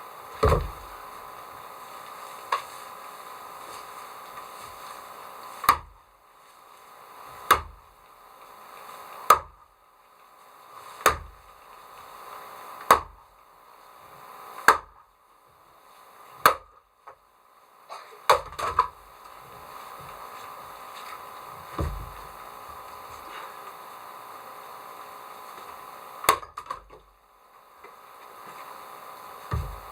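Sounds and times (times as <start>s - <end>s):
axe chopping wood: 0.4s - 0.8s.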